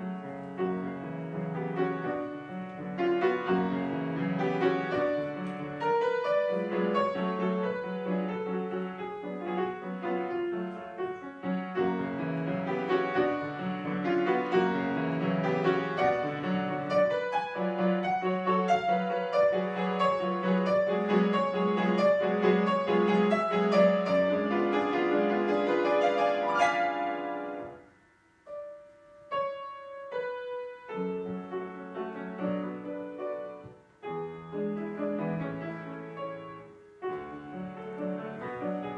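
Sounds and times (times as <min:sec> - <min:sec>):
classical piano piece: 0:00.0 - 0:38.9.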